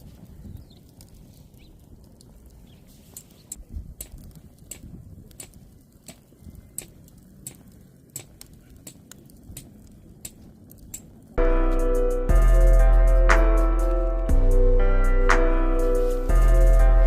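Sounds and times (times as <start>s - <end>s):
campfire crackling and popping: 0.0s - 17.0s
steady low noise: 11.3s - 17.0s.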